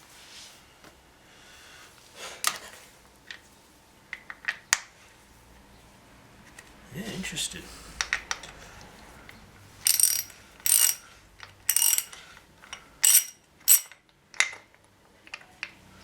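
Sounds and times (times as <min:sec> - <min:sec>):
ratchet wrench clicking: 0:09.8 - 0:11.0, 0:11.7 - 0:12.2, 0:13.0 - 0:14.0.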